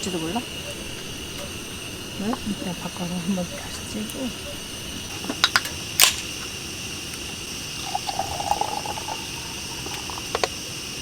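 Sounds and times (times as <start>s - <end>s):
steady high hiss: 0.0s - 11.0s
cooking utensils clicking: 3.6s - 6.5s
liquid being poured: 6.6s - 11.0s.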